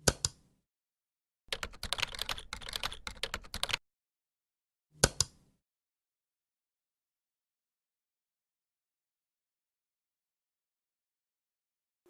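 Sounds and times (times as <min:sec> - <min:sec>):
rapid keyboard-like clicking: 0:01.5 - 0:03.8.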